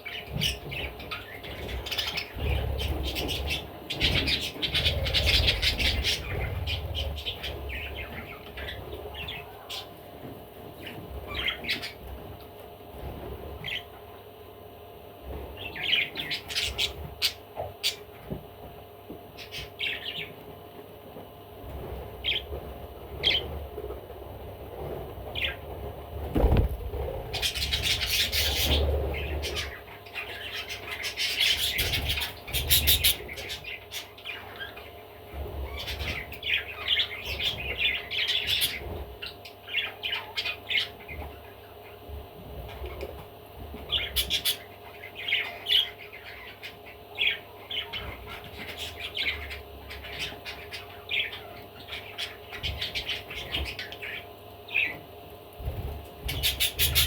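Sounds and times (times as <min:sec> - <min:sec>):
budgerigar chirping and chattering: 0:27.4 - 0:34.8, 0:56.2 - 0:57.0.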